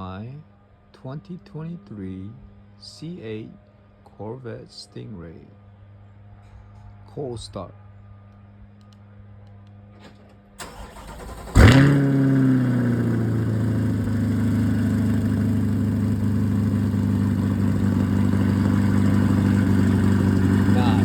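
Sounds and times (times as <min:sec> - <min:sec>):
car engine revving and idling: 0:10.6 - 0:21.0
engine cranking: 0:10.6 - 0:21.0.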